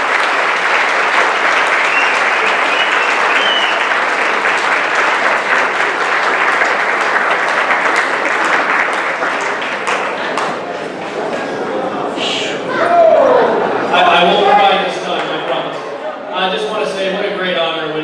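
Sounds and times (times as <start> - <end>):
large audience applauding: 0.0 - 11.3.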